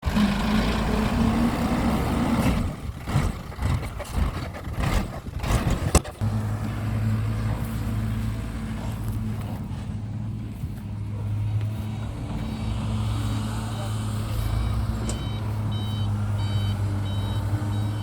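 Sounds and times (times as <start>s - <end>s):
vehicle motor running: 0.0s - 18.0s
irregular knocks and clatter: 3.0s - 12.8s.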